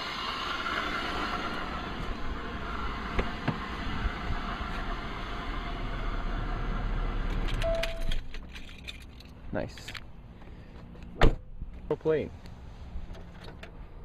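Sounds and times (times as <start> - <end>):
car engine idling: 0.0 - 8.4
short beep: 7.6 - 8.1.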